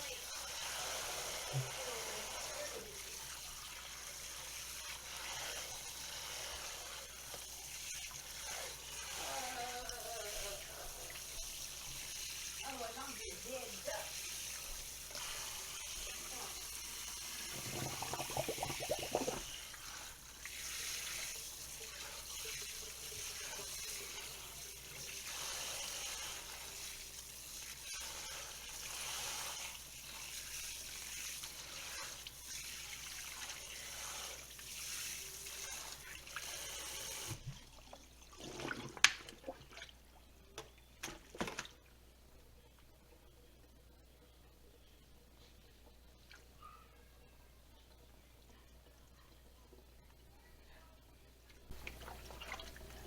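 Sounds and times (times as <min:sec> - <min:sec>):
tap water running into sink: 0:14.1 - 0:25.3, 0:51.7 - 0:53.0.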